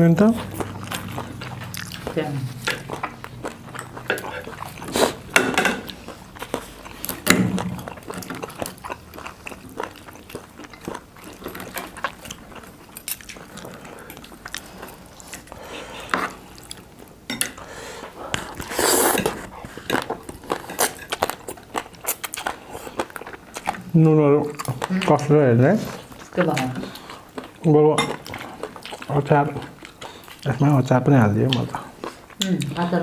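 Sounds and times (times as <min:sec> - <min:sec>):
chewing: 0:00.2 - 0:33.0
cutlery clinking on dishes: 0:05.3 - 0:06.0.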